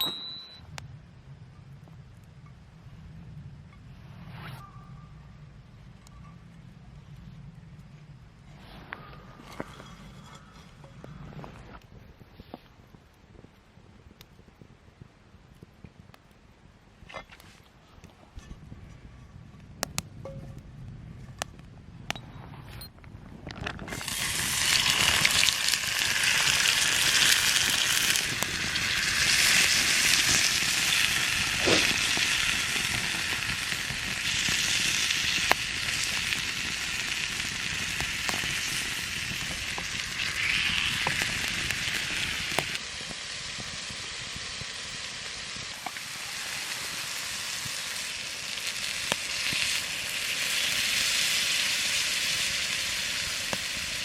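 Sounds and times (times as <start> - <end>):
campfire crackling and hissing: 0.6 - 54.0.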